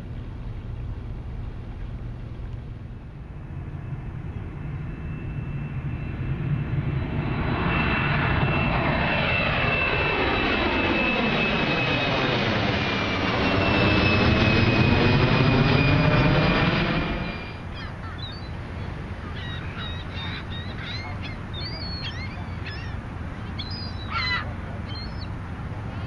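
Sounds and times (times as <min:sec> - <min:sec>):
jet airliner passing overhead: 0:00.0 - 0:26.0
birds calling: 0:17.5 - 0:26.0.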